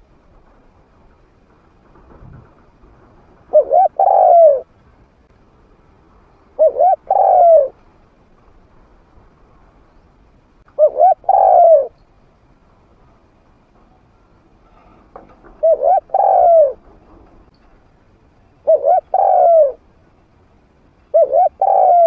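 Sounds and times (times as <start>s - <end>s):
dove cooing: 3.5s - 4.7s, 6.6s - 7.8s, 10.8s - 12.0s, 15.5s - 17.0s, 18.6s - 19.8s, 21.1s - 22.0s.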